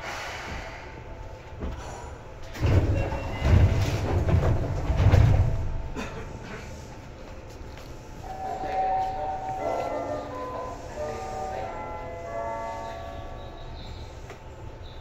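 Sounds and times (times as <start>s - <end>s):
electric train running: 8.2s - 14.9s.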